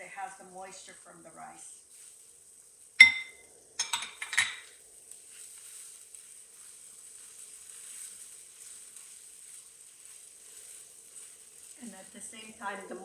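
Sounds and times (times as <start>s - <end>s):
food sizzling in oil: 0.0s - 13.0s
utensil clinking against pot: 3.0s - 4.8s.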